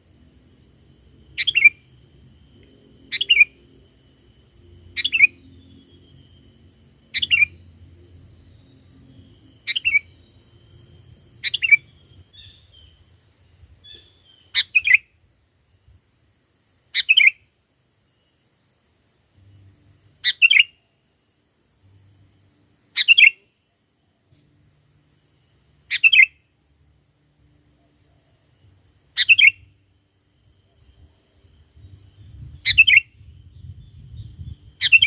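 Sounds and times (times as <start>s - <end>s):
bulbul singing: 0.4s - 21.2s, 21.8s - 23.7s, 25.5s - 26.6s, 28.0s - 35.0s.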